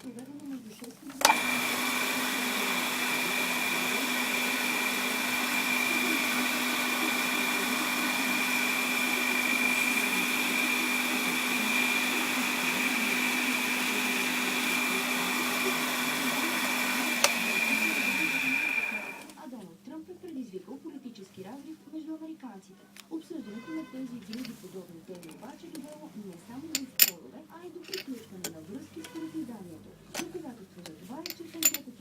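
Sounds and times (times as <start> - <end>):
lathe motor whining: 1.2 - 19.4.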